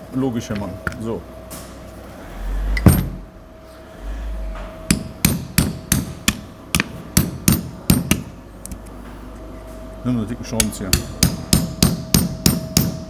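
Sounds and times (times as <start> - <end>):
hammer striking metal: 4.9 - 8.3, 10.6 - 13.0.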